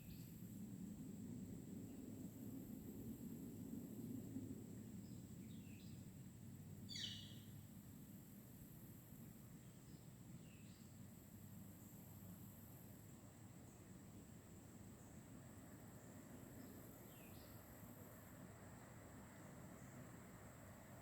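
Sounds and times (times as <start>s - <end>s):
bird chirps: 6.9s - 7.5s.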